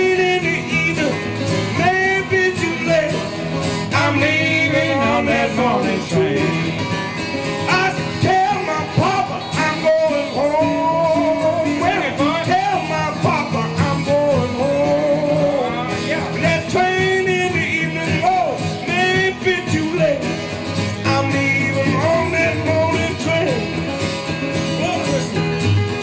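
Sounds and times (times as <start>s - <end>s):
plucked guitars: 0.0s - 26.0s
person singing: 1.8s - 6.9s, 7.7s - 20.2s, 21.0s - 23.8s.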